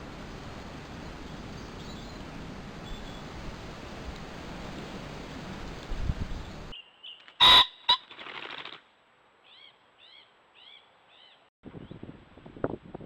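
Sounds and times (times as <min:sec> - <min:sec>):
loud short animal call: 0:07.4 - 0:08.0.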